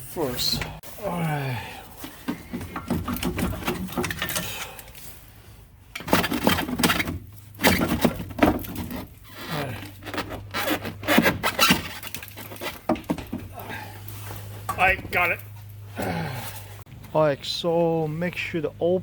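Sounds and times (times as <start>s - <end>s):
metal scraping and knocking: 2.0s - 4.6s, 6.0s - 13.6s.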